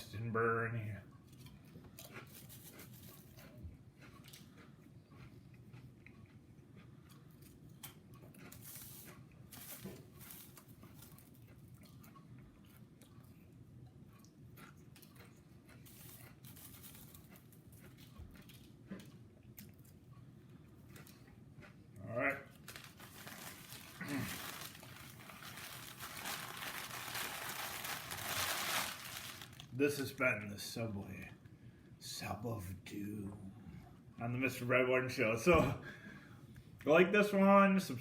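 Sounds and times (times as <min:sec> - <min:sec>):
person chewing: 0:01.1 - 0:29.8
crunchy smears: 0:22.4 - 0:29.8
wrapper crinkling: 0:22.5 - 0:29.8.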